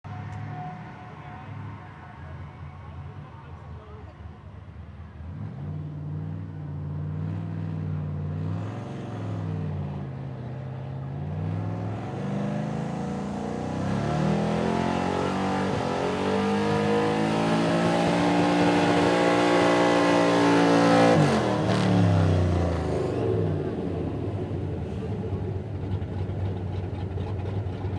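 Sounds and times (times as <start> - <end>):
truck engine revving under load: 11.1 - 27.9.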